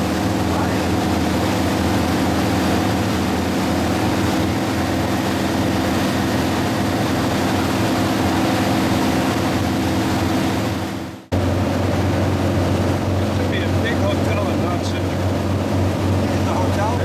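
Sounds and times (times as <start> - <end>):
motorboat engine humming: 0.0 - 17.0
wind and water rushing: 0.0 - 17.0.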